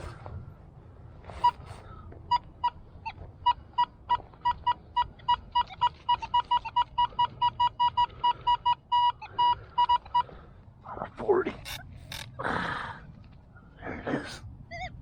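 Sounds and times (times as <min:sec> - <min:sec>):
metal detector beeping: 0:01.3 - 0:01.7, 0:02.3 - 0:10.4, 0:11.6 - 0:12.3.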